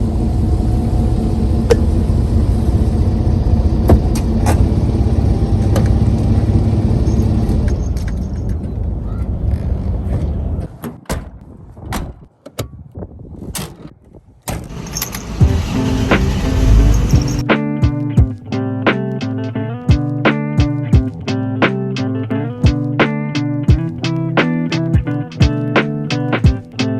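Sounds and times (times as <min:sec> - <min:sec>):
engine running: 0:00.0 - 0:08.5, 0:14.6 - 0:17.5.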